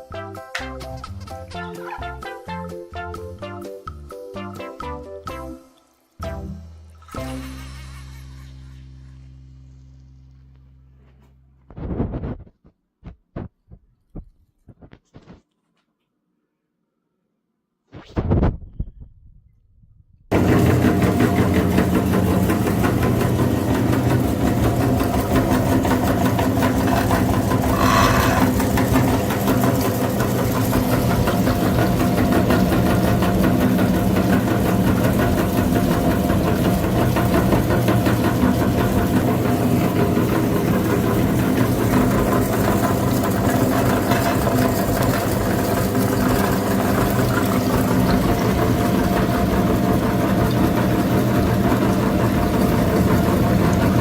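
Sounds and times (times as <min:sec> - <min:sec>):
tractor engine running: 0:20.3 - 0:54.0.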